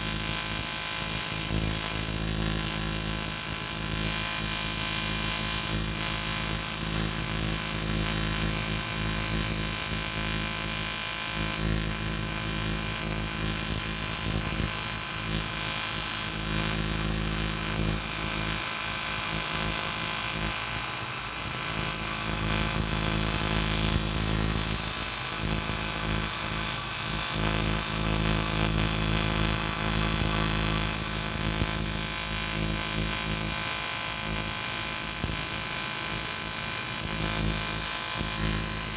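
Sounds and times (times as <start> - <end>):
welding arc buzzing: 0.0 - 38.9.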